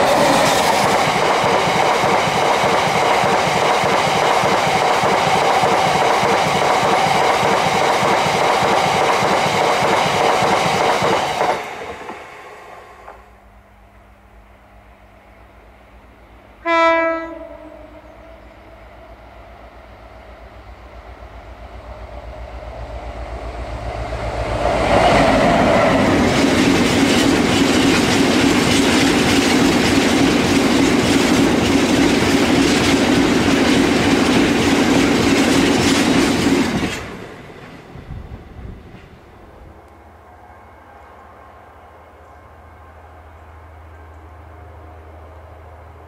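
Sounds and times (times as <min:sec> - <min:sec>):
diesel locomotive engine: 0:00.0 - 0:46.0
train horn blast: 0:16.6 - 0:19.0.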